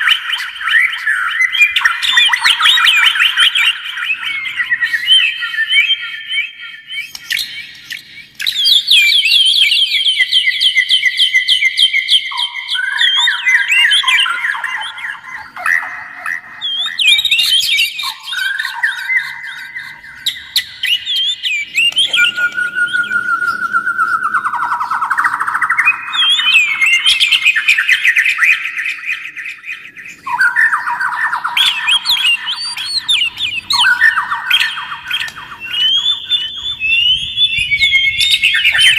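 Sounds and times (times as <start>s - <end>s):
songbird singing: 0.0s - 38.9s.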